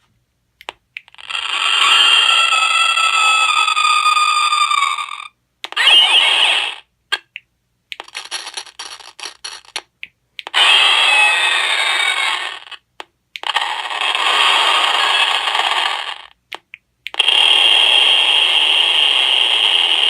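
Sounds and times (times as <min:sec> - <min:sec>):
shrill burst from small speaker: 0:01.4 - 0:06.8, 0:10.6 - 0:12.8
crackling and clicking: 0:07.1 - 0:10.6, 0:12.1 - 0:17.4.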